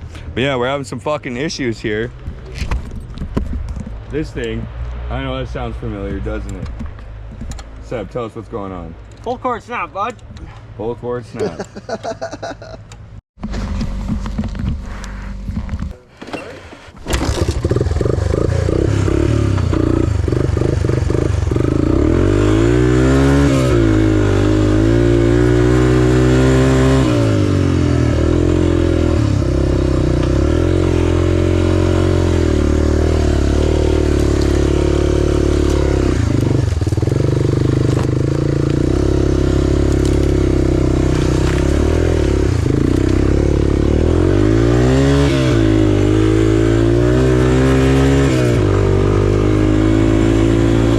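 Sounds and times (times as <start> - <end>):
small motorcycle engine revving: 17.0 - 50.9.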